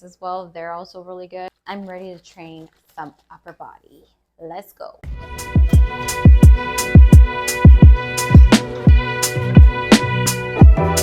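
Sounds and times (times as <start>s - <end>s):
deep kick drums: 5.1s - 10.0s, 10.6s - 10.8s
sharp high hits: 5.1s - 10.8s
held chords: 5.1s - 11.0s.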